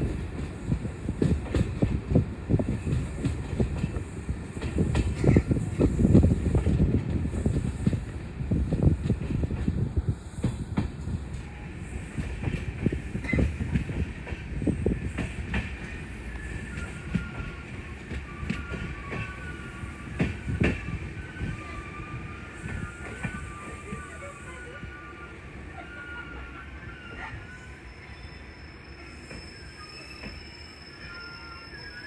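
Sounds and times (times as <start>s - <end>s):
train wheels clacking on rails: 0.0s - 24.8s
train low rumble: 0.0s - 32.0s
wavering wheel squeal: 11.5s - 32.0s.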